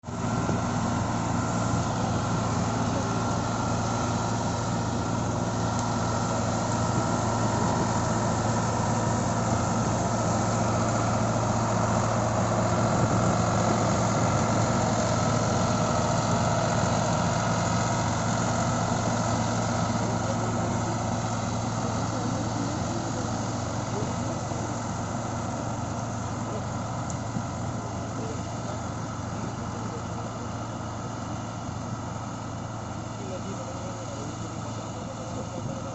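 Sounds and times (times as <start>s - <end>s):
diesel tractor engine running: 0.0s - 35.9s.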